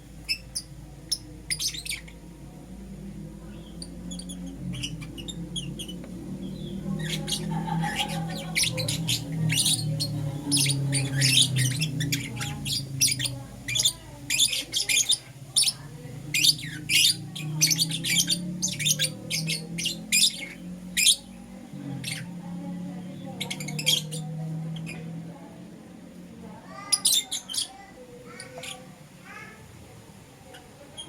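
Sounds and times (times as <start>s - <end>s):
lovebirds chirping: 0.0s - 25.6s, 26.4s - 29.5s.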